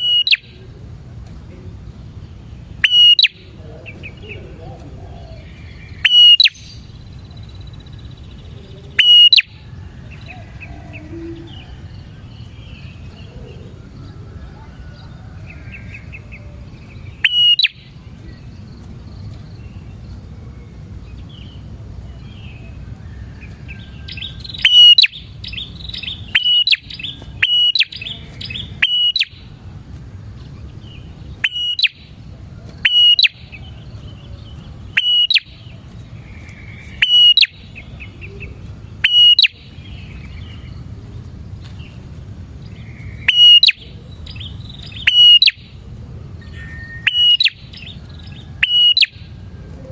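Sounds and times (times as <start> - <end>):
bird sharp chirps: 0.0 - 0.6, 2.3 - 4.5, 5.1 - 13.7, 15.5 - 20.1, 23.7 - 29.6, 30.6 - 32.2, 32.8 - 40.9, 42.7 - 45.8, 46.4 - 49.3
low background rumble: 0.0 - 32.8.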